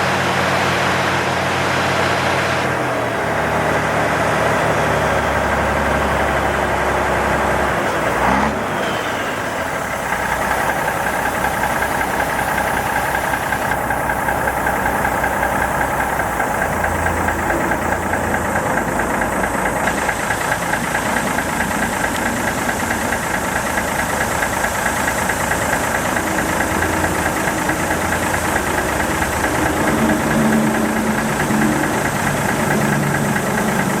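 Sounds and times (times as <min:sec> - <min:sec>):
diesel truck engine idling: 0:00.0 - 0:34.0.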